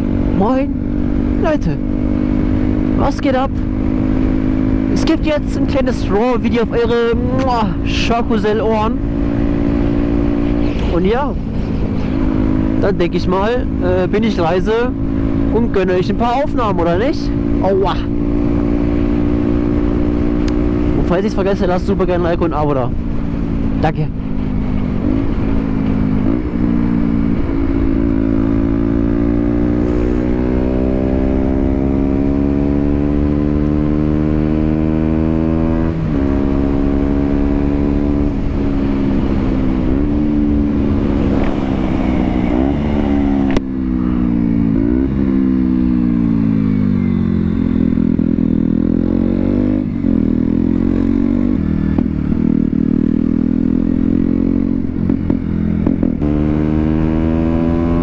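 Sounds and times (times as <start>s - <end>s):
wind rushing over microphone: 0.0s - 23.8s, 24.4s - 34.3s, 35.0s - 56.4s
motorcycle engine accelerating: 0.0s - 58.0s.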